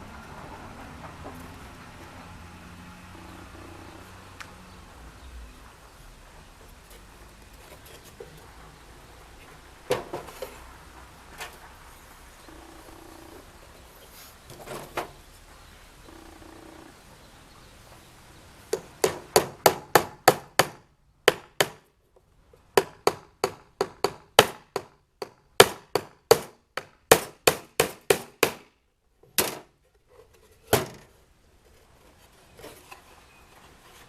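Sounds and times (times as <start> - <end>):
hammer driving nails into wood: 18.7 - 21.9, 22.8 - 28.8.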